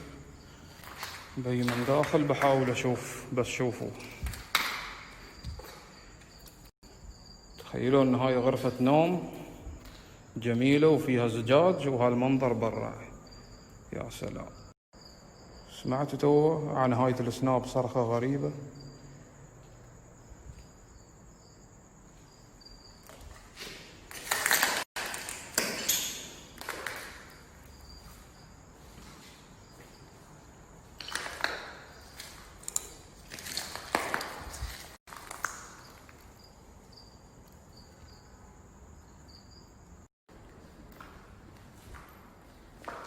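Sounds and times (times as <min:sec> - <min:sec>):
insects trilling: 0:00.0 - 0:40.5
crunching scuffing footsteps: 0:19.0 - 0:21.0, 0:26.6 - 0:36.3.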